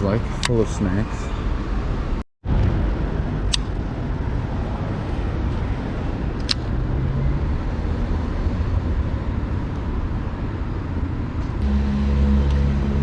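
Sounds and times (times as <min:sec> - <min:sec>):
passing traffic rumble: 0:00.0 - 0:13.0
sharp click: 0:03.5 - 0:03.8, 0:06.4 - 0:06.7
motor droning: 0:11.6 - 0:13.0.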